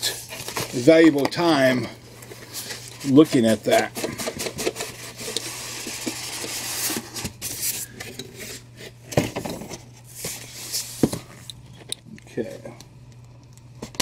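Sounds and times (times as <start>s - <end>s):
packaging rubbing and scraping: 0.0s - 9.1s.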